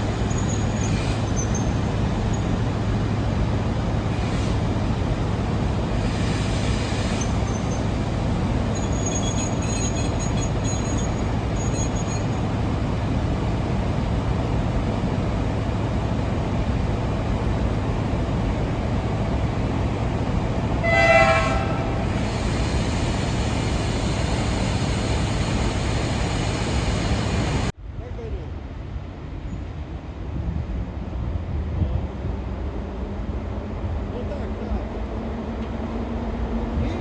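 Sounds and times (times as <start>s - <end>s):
locomotive low running rumble: 0.0s - 27.7s
locomotive horn blast: 20.8s - 22.3s.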